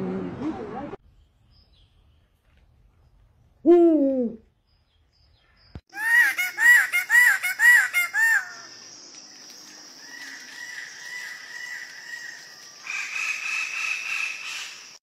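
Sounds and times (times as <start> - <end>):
bird calling: 5.9 - 8.8.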